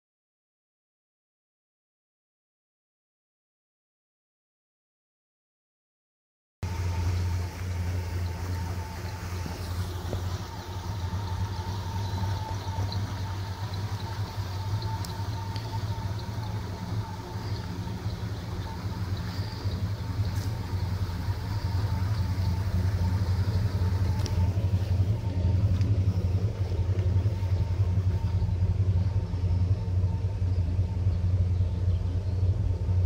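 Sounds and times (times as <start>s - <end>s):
car engine rumbling: 6.6s - 33.0s.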